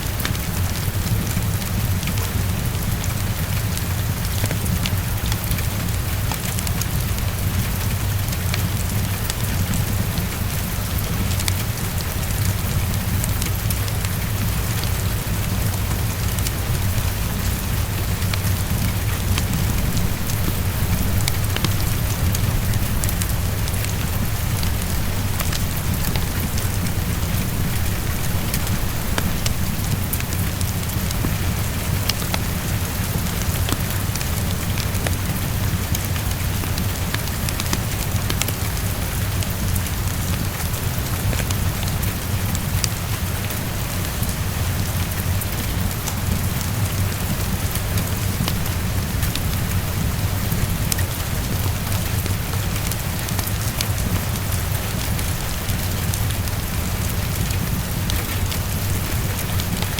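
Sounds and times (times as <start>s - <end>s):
heavy rain on window: 0.0s - 59.9s
low rumble: 14.2s - 33.1s.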